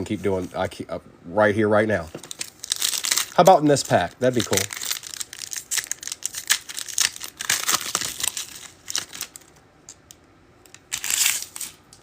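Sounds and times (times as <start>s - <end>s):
foil wrapper crinkling: 2.0s - 9.6s, 10.7s - 12.0s.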